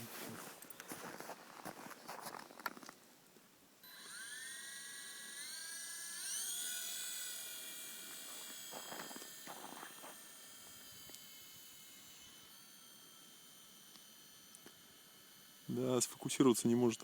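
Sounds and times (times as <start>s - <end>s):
electric motor whine: 3.8s - 17.0s.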